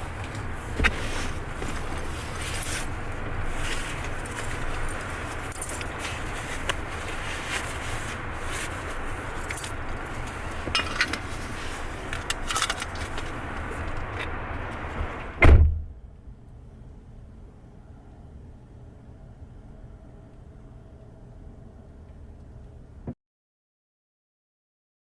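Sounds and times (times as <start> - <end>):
car humming: 0.0 - 23.2
keys jangling: 1.6 - 6.4, 9.2 - 11.3, 12.1 - 13.4.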